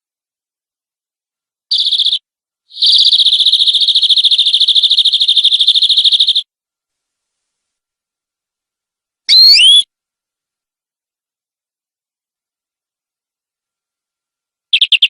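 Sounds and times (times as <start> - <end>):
canary trilling: 1.7 - 6.4, 9.3 - 9.8, 14.7 - 15.0.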